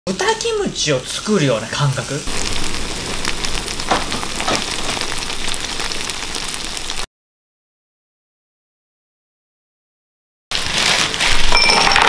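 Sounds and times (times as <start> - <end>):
fish frying in a pan: 0.1 - 7.1, 10.5 - 12.0.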